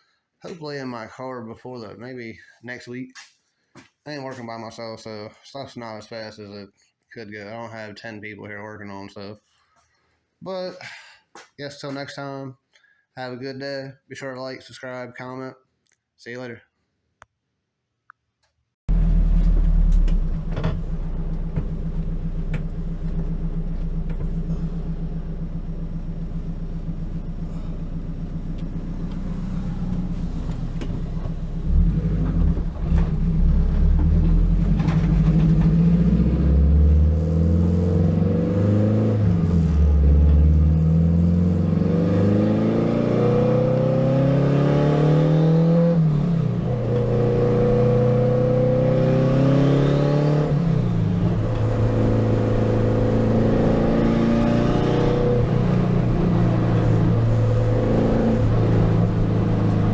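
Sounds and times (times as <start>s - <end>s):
race car engine accelerating: 18.9s - 59.9s.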